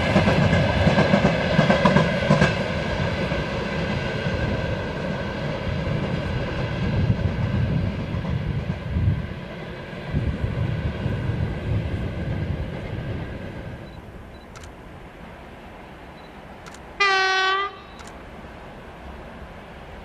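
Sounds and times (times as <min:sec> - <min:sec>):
train rumbling on rails: 0:00.0 - 0:20.0
train horn blast: 0:17.0 - 0:18.0.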